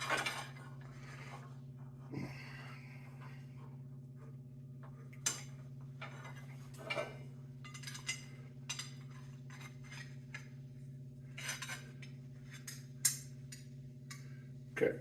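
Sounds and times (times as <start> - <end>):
steady low hum: 0.0 - 15.0
steel pieces clinking on metal: 7.6 - 10.1.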